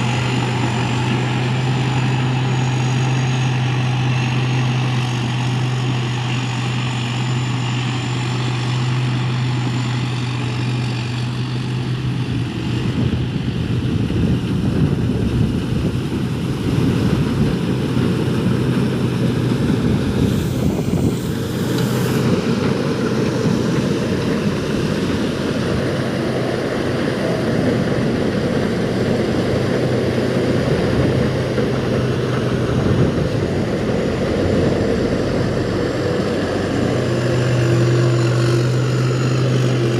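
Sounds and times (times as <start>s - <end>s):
rush of air: 12.2s - 39.8s.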